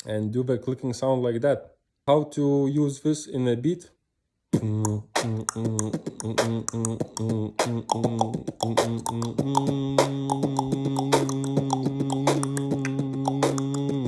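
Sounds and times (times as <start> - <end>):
beatbox tongue clicks: 4.6 - 14.0
hummed bass line: 4.6 - 14.0.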